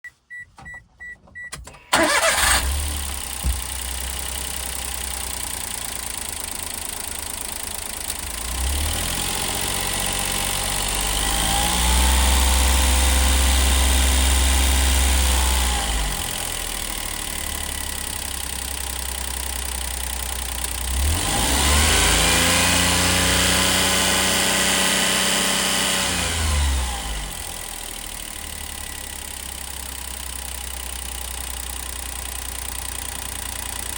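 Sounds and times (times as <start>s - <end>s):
short beeps: 0.0s - 1.9s
car engine idling and revving: 1.8s - 33.9s.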